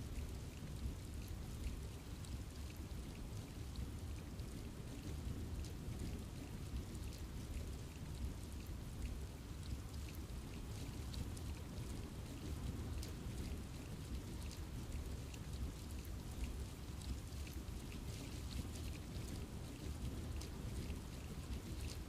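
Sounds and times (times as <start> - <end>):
steady rain in forest: 0.0 - 22.0
raindrop ticks: 0.2 - 22.0.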